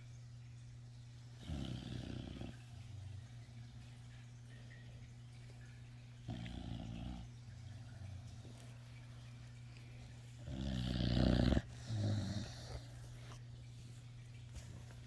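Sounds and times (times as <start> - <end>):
puppy snoring: 1.4 - 3.2, 6.3 - 7.4, 10.4 - 13.4.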